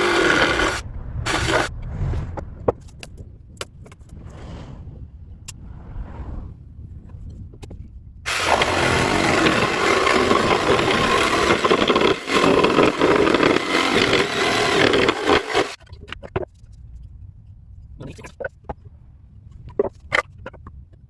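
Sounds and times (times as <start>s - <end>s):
power tool cutting wood: 0.0s - 1.7s, 8.3s - 15.8s.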